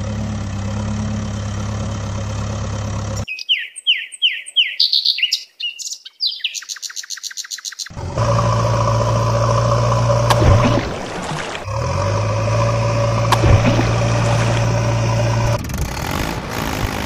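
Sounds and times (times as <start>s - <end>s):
steady engine drone: 0.0s - 3.3s, 7.9s - 17.0s
bird whistling and trilling: 3.3s - 7.9s.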